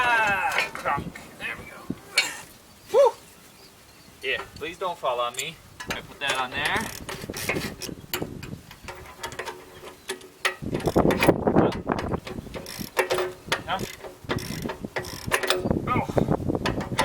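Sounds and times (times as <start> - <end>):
metal clicking and clanking: 5.3 - 15.8, 16.6 - 17.0.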